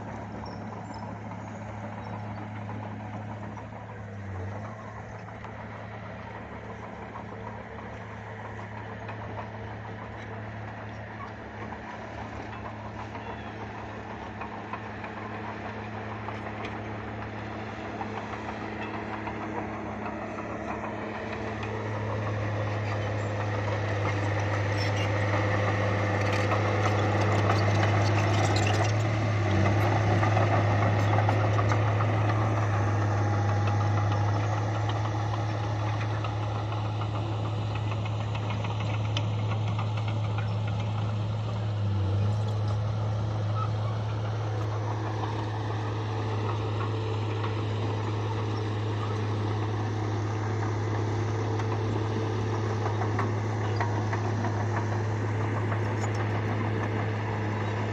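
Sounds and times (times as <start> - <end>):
bulldozer diesel engine running: 0.0 - 57.9.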